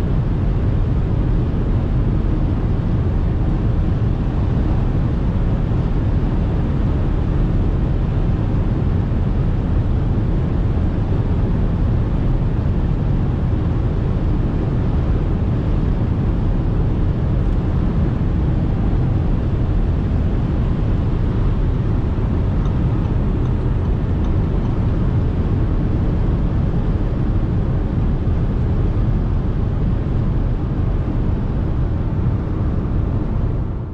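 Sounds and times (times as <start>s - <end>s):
car driving rumble: 17.2s - 27.0s.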